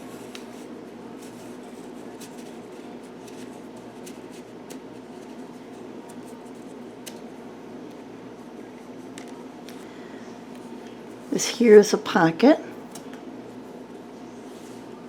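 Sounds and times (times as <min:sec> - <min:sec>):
paper rustling: 0:00.0 - 0:07.3
steady background hum: 0:00.0 - 0:15.0.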